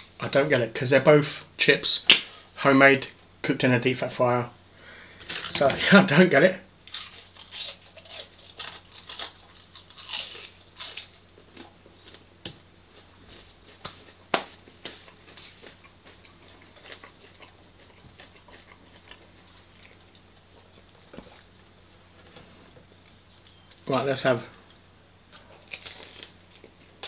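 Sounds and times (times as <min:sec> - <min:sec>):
person crunching chips: 0:06.8 - 0:12.3, 0:14.6 - 0:21.4, 0:25.4 - 0:27.0.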